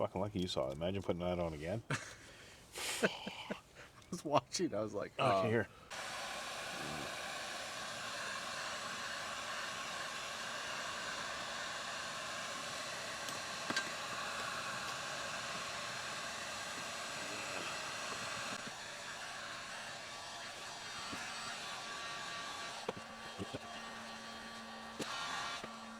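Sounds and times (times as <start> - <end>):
heat gun blowing: 2.7 - 3.1, 5.8 - 25.9.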